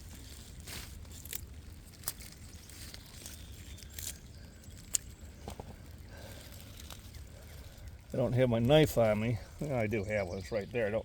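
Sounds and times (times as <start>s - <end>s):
plastic rustling and crinkling: 0.0s - 9.3s.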